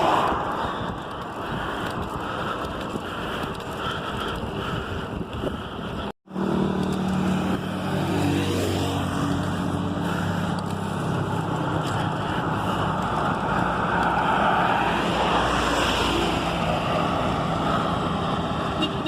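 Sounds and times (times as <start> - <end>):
wind noise on microphone: 0.0 - 6.2
vehicle engine running: 5.5 - 13.7.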